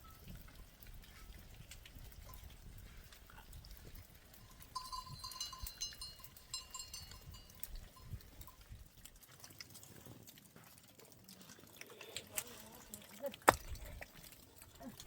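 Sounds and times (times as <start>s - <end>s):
livestock bells jingling: 4.2s - 8.9s.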